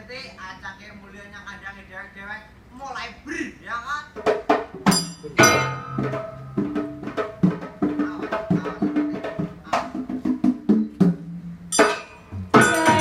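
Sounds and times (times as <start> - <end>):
drums and pitched percussion: 4.1 - 13.0
sharp ringing clashes: 4.9 - 6.6, 11.7 - 13.0.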